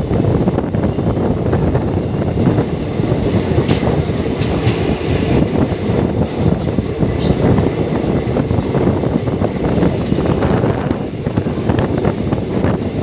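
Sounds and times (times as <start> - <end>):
train wheels rumbling on rail: 0.0 - 13.0
wheels clicking over rail joints: 3.4 - 13.0.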